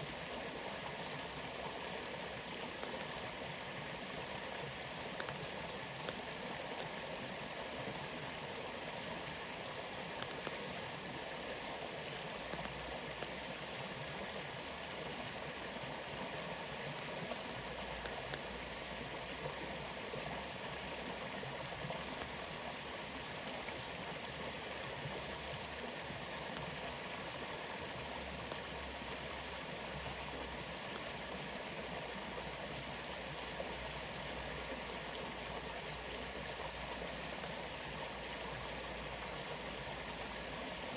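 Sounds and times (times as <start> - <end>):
faint water drop ticks: 5.2 - 5.4, 10.2 - 10.6, 18.0 - 18.6.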